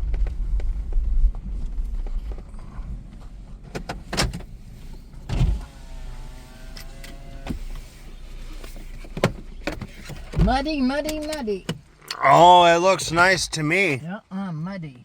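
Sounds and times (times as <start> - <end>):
car window motor whining: 5.2 - 10.3.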